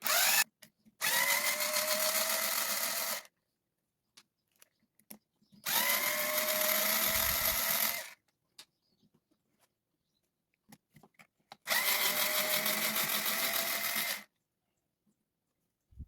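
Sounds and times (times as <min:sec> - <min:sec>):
cordless power driver whine: 0:00.0 - 0:00.4, 0:01.0 - 0:03.3, 0:05.7 - 0:08.2, 0:11.7 - 0:14.3.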